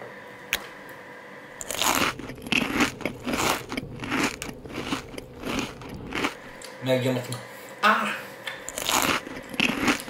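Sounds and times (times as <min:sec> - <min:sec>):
person chewing: 0:01.6 - 0:06.7, 0:08.6 - 0:10.0.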